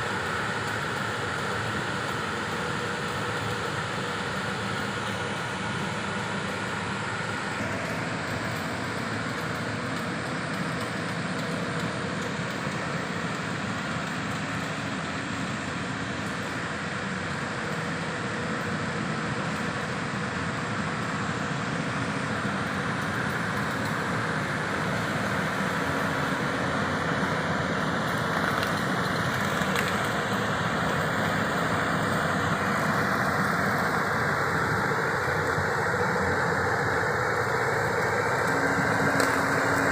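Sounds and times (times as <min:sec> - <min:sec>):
power sprayer engine rushing: 0:21.9 - 0:39.9.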